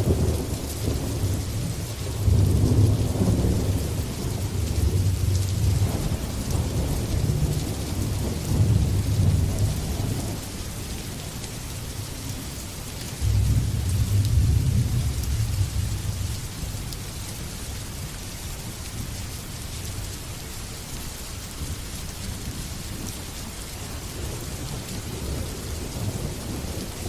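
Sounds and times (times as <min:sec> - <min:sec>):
rolling thunder: 0:00.0 - 0:10.4, 0:13.2 - 0:16.8
heavy rain: 0:00.0 - 0:27.0.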